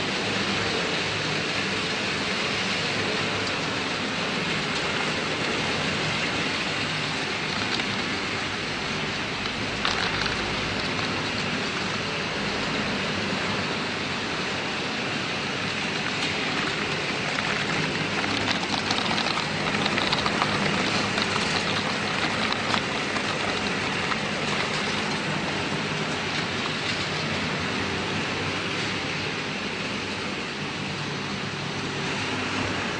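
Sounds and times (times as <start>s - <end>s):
production line machinery din: 5.7s - 29.1s
hissing pattering layer: 6.9s - 12.6s, 15.6s - 27.4s.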